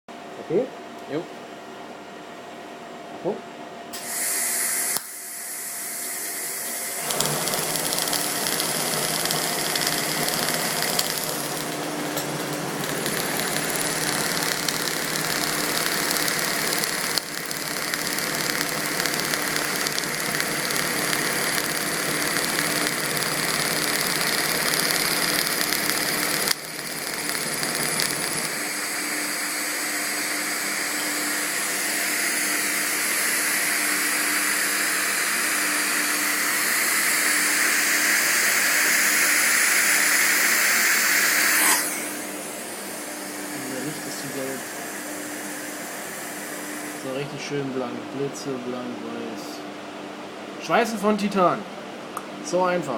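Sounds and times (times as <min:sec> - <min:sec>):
welding arc hissing: 0:04.0 - 0:29.5.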